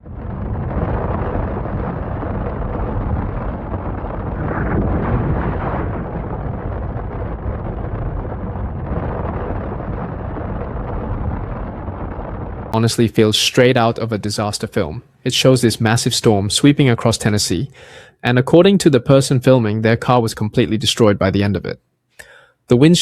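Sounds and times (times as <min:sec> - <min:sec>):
storm wind on car bodywork: 0:00.0 - 0:12.8.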